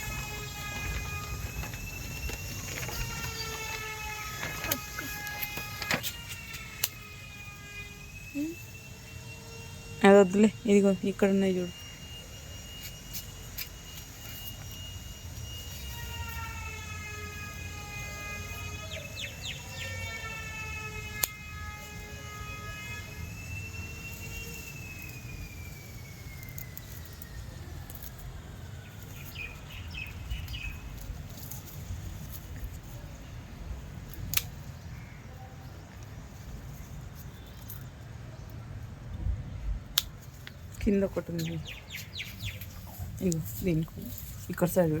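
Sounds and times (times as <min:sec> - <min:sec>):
distant siren-like wail: 0:00.0 - 0:45.0
bird chirps: 0:18.8 - 0:20.0, 0:28.9 - 0:31.1, 0:41.2 - 0:44.2.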